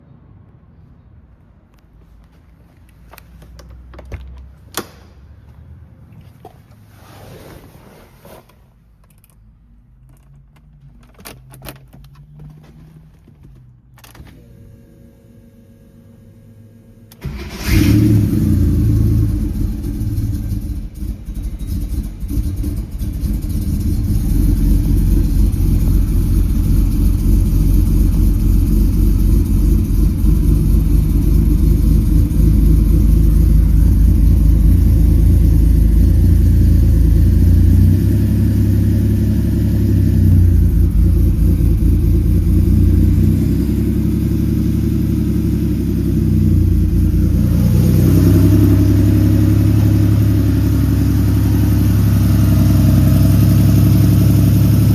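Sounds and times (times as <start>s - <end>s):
car engine idling: 16.9s - 54.9s.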